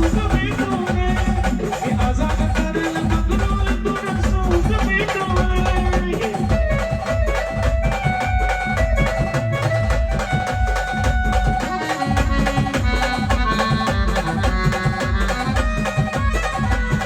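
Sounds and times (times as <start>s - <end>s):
fast steady drumming: 0.0s - 17.0s.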